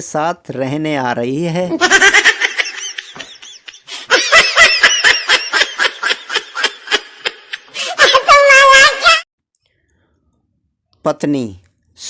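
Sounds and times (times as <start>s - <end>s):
high-pitched laughter: 1.8s - 9.2s.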